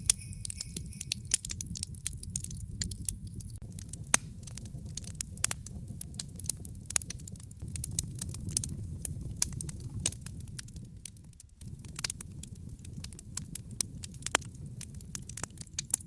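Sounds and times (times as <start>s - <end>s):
low rumble: 0.0s - 6.0s
wood fire crackling: 0.0s - 16.0s.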